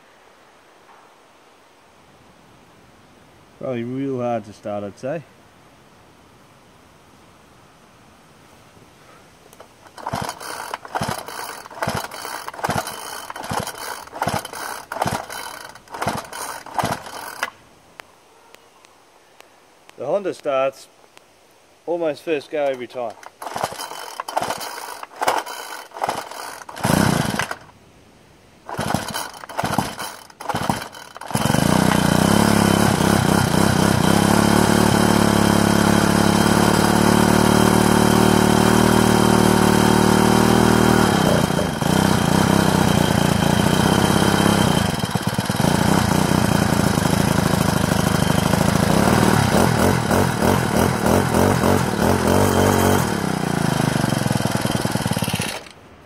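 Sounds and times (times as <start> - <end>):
brushcutter engine running: 9.6 - 17.6, 22.6 - 27.7, 28.7 - 55.8
starter cord pulls: 9.6 - 17.6, 22.6 - 27.7, 28.7 - 38.2, 40.8 - 55.8.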